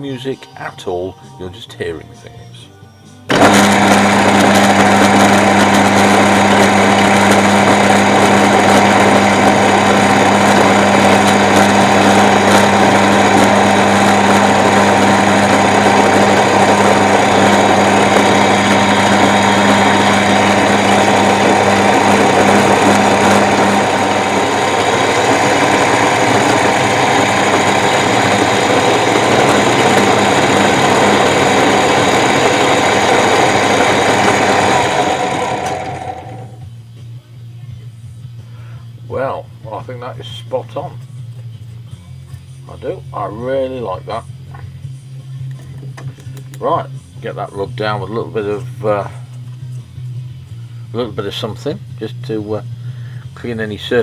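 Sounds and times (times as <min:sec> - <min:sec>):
milling machine running: 0:03.3 - 0:36.6.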